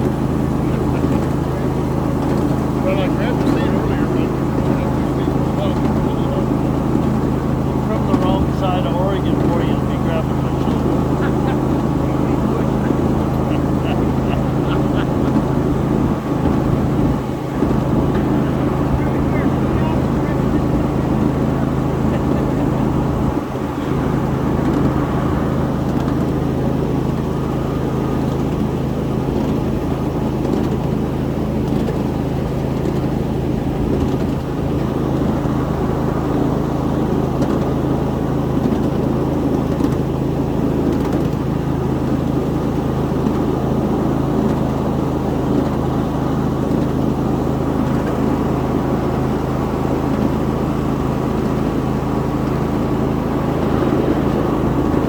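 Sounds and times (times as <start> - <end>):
wheel and track noise: 0.0 - 55.0.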